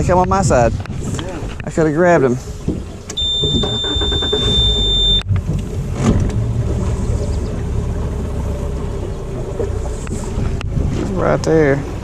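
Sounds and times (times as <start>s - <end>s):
outboard motor running: 2.1s - 12.0s
high steady beep: 3.2s - 5.3s.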